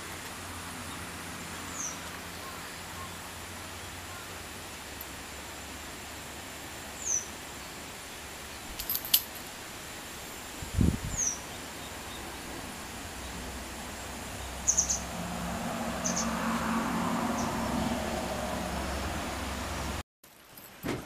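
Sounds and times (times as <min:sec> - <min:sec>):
small bird chirping: 0:11.1 - 0:12.3.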